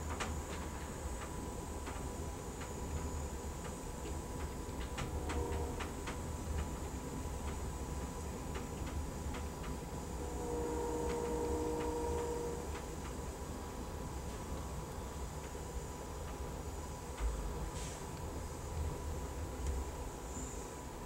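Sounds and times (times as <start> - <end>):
train low rumble: 0.0 - 21.0.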